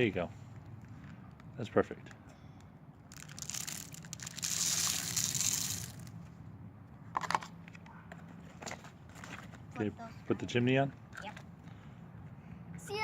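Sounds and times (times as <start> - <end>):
birdseed pouring through funnel: 3.2 - 6.1.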